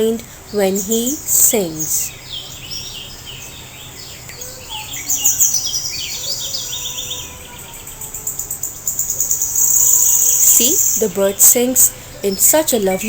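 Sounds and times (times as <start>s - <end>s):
birds chirping: 0.0s - 13.0s
high-pitched insect-like trill: 6.2s - 11.1s.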